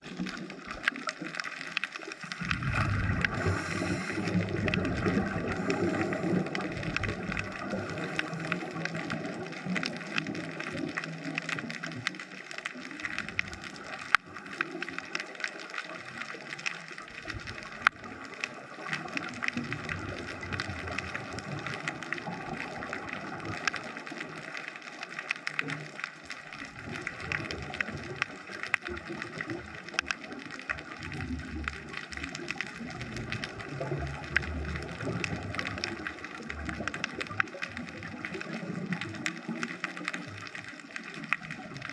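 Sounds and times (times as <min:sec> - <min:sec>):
underwater crackle of clicks: 0:00.0 - 0:41.9
low rumbling: 0:02.4 - 0:08.2.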